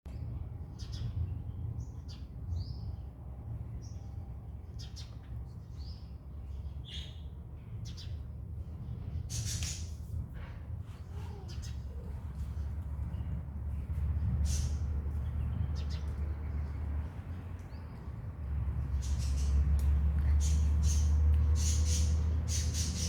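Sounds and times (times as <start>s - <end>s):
small birds chirping: 0.1s - 8.3s, 11.0s - 23.0s
steady low rumble: 6.2s - 23.0s.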